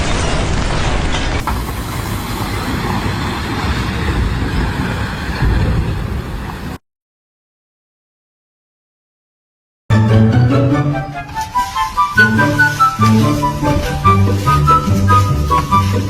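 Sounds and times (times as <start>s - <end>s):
heavy machinery rumbling: 1.4s - 6.8s, 9.9s - 16.0s.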